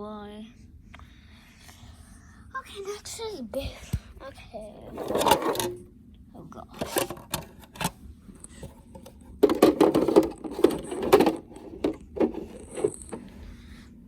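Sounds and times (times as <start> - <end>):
plastic toy truck rattling: 5.0 - 5.8, 6.8 - 7.9, 9.4 - 13.2.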